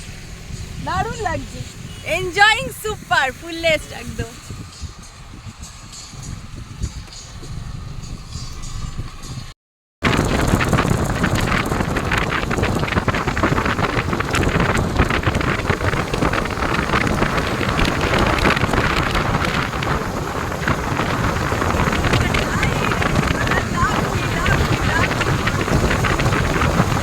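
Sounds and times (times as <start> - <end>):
wind buffeting microphone: 0.0 - 27.0
rain: 10.0 - 27.0.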